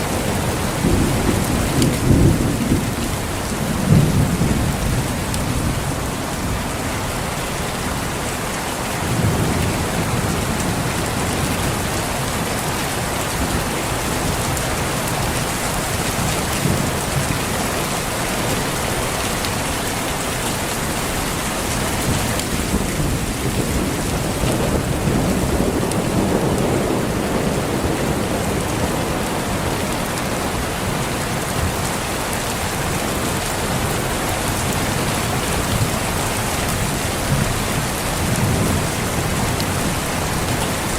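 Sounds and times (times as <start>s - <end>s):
heavy rain on foliage: 0.0s - 40.9s
low rolls of thunder: 0.5s - 6.6s, 22.0s - 30.2s.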